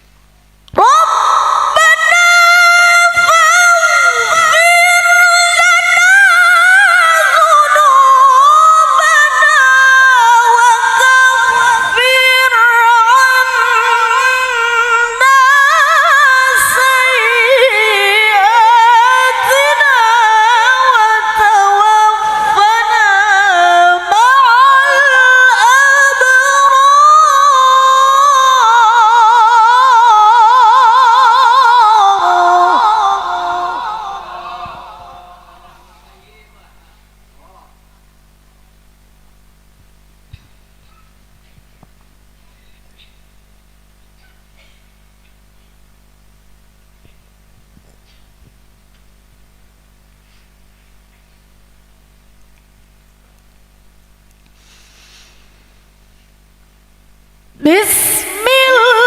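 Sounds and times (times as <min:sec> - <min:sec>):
woman chanting melodically: 0:00.7 - 0:35.9, 0:57.6 - 0:59.0.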